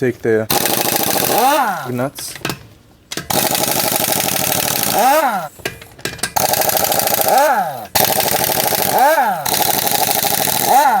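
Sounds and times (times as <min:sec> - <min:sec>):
impact wrench motor whirring: 0:00.5 - 0:02.0, 0:03.2 - 0:05.6, 0:06.4 - 0:11.0
impact wrench hammering: 0:00.5 - 0:11.0.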